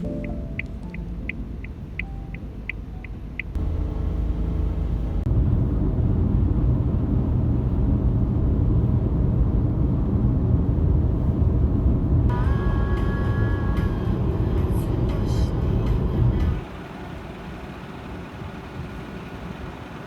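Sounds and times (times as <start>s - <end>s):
steady higher tones: 0.0s - 5.2s
vehicle rumbling: 0.0s - 20.0s.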